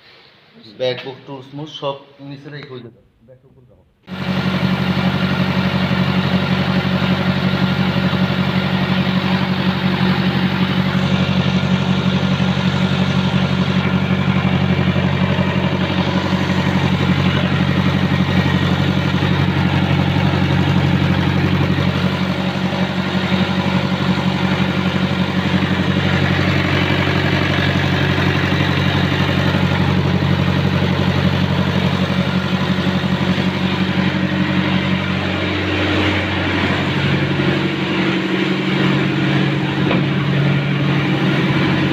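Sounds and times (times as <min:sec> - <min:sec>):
diesel generator engine running: 0:04.0 - 0:41.9.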